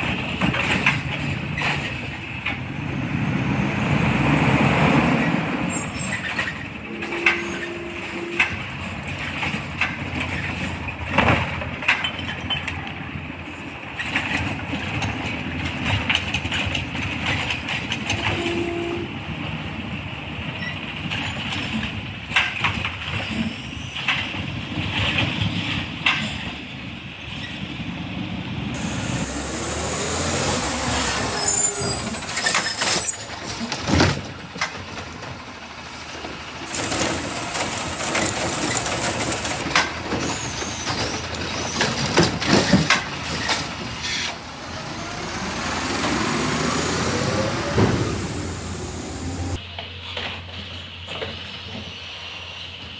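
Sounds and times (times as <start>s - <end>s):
diesel engine running: 0.0s - 9.6s, 28.5s - 49.6s
air hiss: 28.8s - 32.3s
heavy bang: 47.2s - 49.6s.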